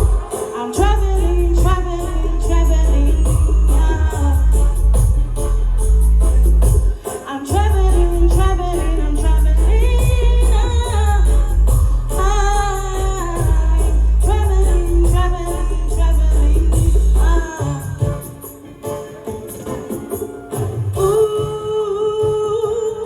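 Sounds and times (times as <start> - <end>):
woman singing: 0.0 - 5.8, 6.7 - 18.8, 19.5 - 23.0
heavy bass line: 0.0 - 18.2.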